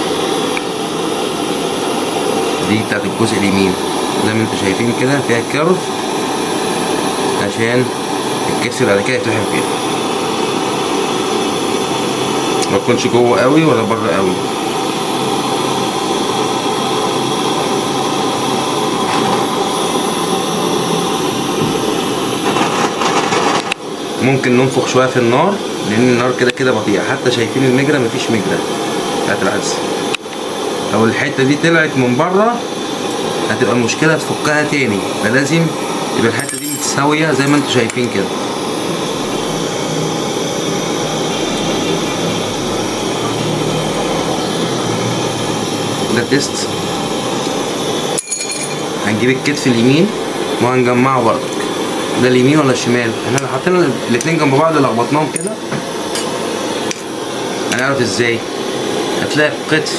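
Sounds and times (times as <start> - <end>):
soldering flame rushing: 0.0 - 48.2, 48.8 - 59.9.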